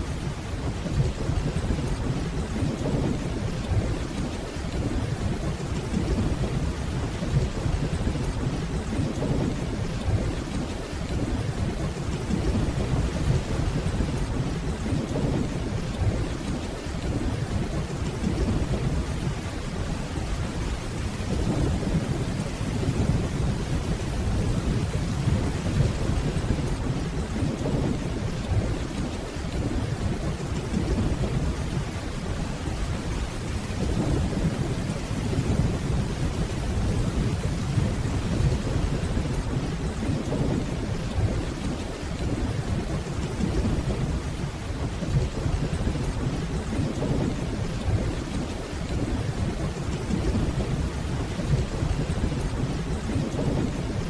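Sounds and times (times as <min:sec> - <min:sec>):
steady rainfall: 0:00.0 - 0:54.0
distant thunder rumbling: 0:00.2 - 0:54.0.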